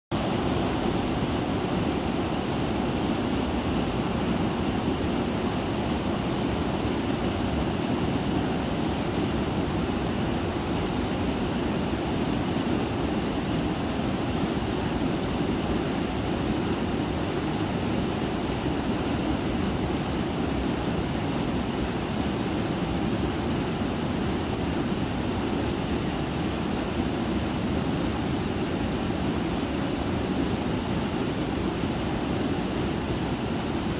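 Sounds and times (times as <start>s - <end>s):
mountain stream flowing: 0.2s - 33.9s.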